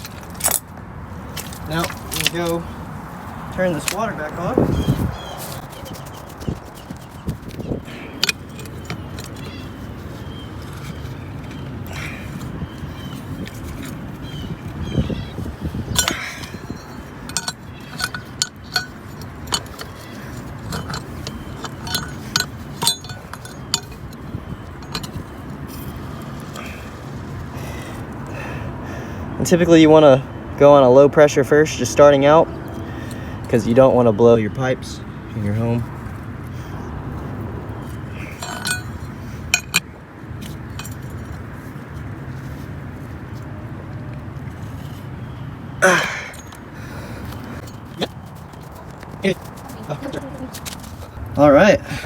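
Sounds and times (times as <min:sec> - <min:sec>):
metal clinking: 0:00.0 - 0:02.7, 0:05.5 - 0:26.9, 0:37.1 - 0:42.7, 0:45.8 - 0:48.8
ringing metallic clinks: 0:15.9 - 0:25.4, 0:37.8 - 0:41.4, 0:46.0 - 0:46.6.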